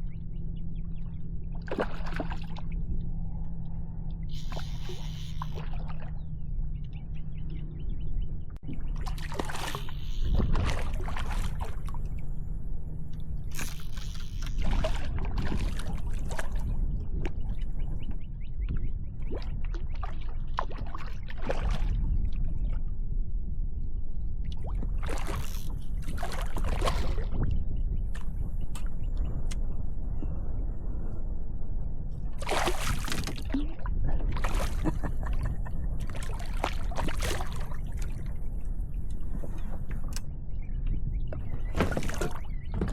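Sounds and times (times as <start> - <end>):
wind buffeting microphone: 0.8 - 42.9
water splashing against kayak hull: 1.6 - 2.6, 8.6 - 12.2, 13.5 - 16.7, 24.6 - 27.5, 32.4 - 38.4, 41.4 - 42.9.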